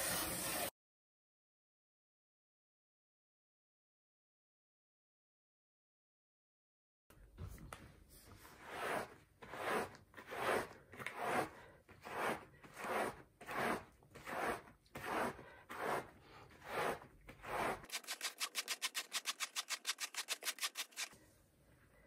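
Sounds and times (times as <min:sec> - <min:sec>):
rubber glove rubbing bath mat: 0:16.7 - 0:21.1.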